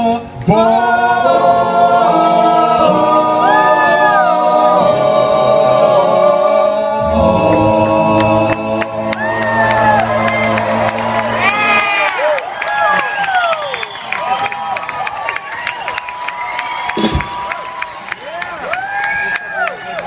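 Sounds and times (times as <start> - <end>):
male voices singing harmony: 0.0 - 11.4
lead singer vocal runs: 0.0 - 11.8.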